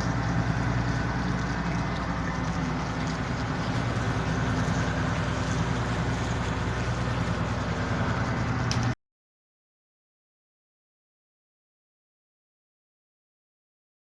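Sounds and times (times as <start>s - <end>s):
boat engine humming: 0.0s - 9.0s.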